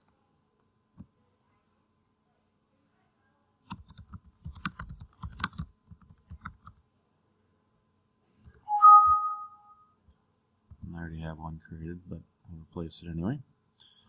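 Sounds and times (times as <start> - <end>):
computer keyboard typing: 3.7 - 6.8.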